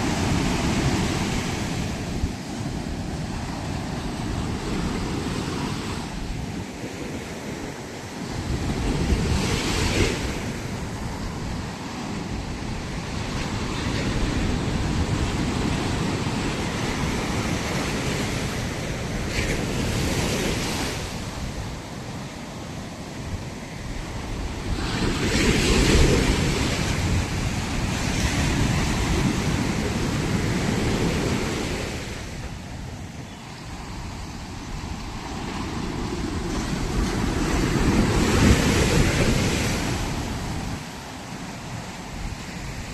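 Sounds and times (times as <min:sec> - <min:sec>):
ocean waves breaking: 0:00.0 - 0:42.9
wind buffeting microphone: 0:00.0 - 0:42.9.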